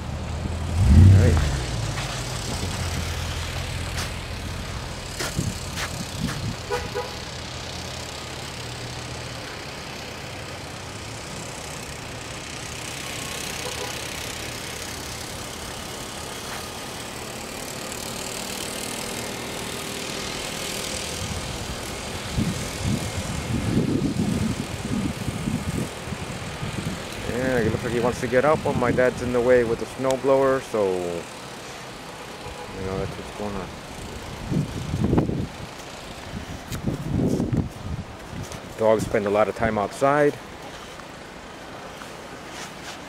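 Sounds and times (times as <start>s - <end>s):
low rumbling bumps: 0.0s - 6.8s
engine running: 0.0s - 43.0s.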